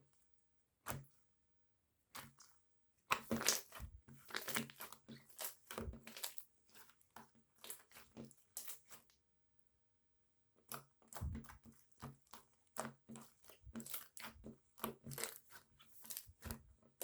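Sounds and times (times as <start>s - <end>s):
crackling and crinkling: 3.1s - 9.1s, 10.8s - 17.0s.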